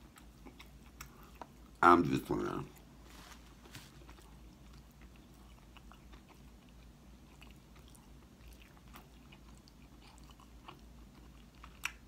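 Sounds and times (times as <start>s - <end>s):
low steady hum: 0.0s - 12.0s
chewing and wet mouth clicks: 0.1s - 1.6s, 4.1s - 12.0s.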